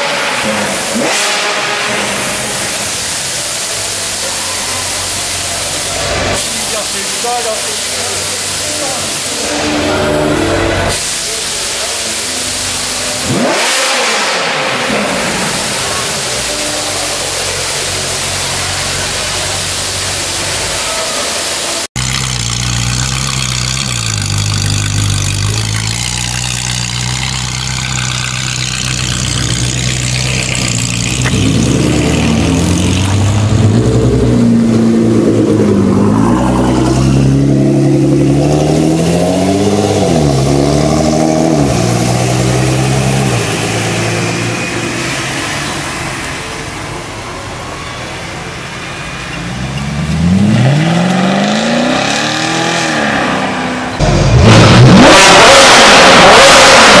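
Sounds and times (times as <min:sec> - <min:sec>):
car engine revving hard: 0:00.0 - 0:47.3, 0:49.4 - 0:57.0
car engine idling: 0:00.0 - 0:50.6.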